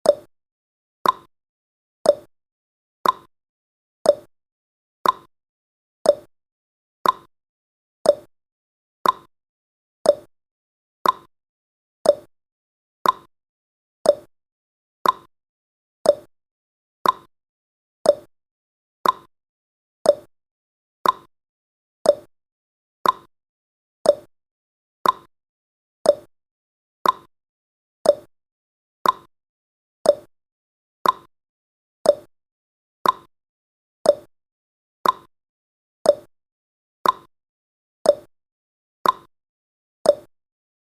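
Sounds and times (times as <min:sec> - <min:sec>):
clock ticking: 0:03.0 - 0:03.3, 0:05.0 - 0:05.3, 0:07.0 - 0:07.3, 0:09.0 - 0:09.3, 0:11.0 - 0:11.3, 0:13.0 - 0:13.3, 0:15.0 - 0:15.3, 0:16.1 - 0:16.3, 0:17.0 - 0:17.3, 0:19.0 - 0:19.3, 0:21.0 - 0:21.3, 0:22.1 - 0:22.3, 0:23.0 - 0:23.3, 0:24.1 - 0:24.3, 0:25.0 - 0:25.3, 0:26.1 - 0:26.3, 0:27.0 - 0:27.3, 0:28.0 - 0:28.3, 0:29.0 - 0:29.3, 0:30.1 - 0:30.3, 0:31.0 - 0:31.3, 0:33.0 - 0:33.3, 0:34.1 - 0:34.3, 0:35.0 - 0:35.3, 0:37.0 - 0:37.3, 0:38.1 - 0:38.3, 0:39.0 - 0:39.3, 0:40.1 - 0:40.3.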